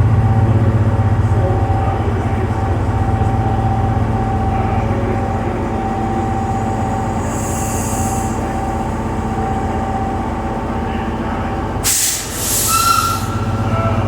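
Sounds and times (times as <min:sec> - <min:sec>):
constant whine: 0:00.0 - 0:11.8, 0:13.2 - 0:14.0
train engine drone: 0:00.0 - 0:14.0
hiss of released air: 0:07.2 - 0:08.4, 0:11.8 - 0:13.3.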